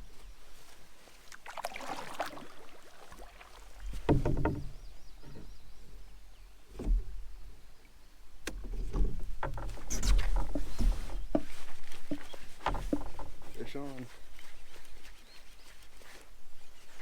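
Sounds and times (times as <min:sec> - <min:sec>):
water sounds: 0:01.1 - 0:04.9
knocks against canoe hull: 0:03.8 - 0:05.6, 0:06.7 - 0:07.3, 0:08.4 - 0:13.6.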